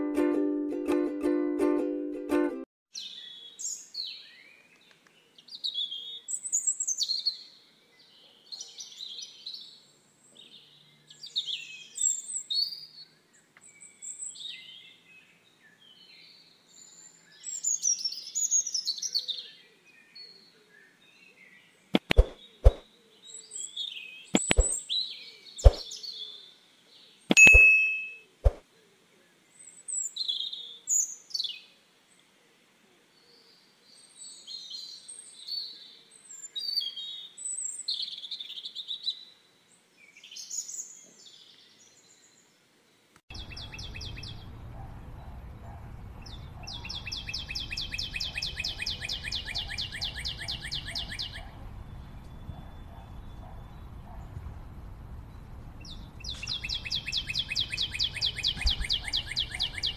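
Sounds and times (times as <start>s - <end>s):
sharp clicks: 22.0s - 22.8s, 24.4s - 24.8s
birds chirping: 22.0s - 23.2s, 24.3s - 26.2s, 27.3s - 28.6s, 43.3s - 59.9s.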